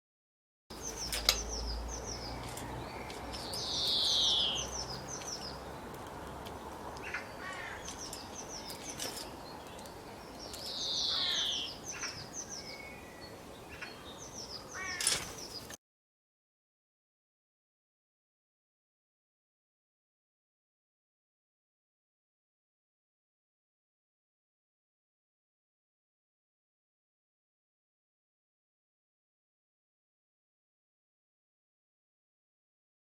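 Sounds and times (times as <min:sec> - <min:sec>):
outdoor background noise: 0:00.7 - 0:15.8
songbird chirping: 0:00.7 - 0:15.8.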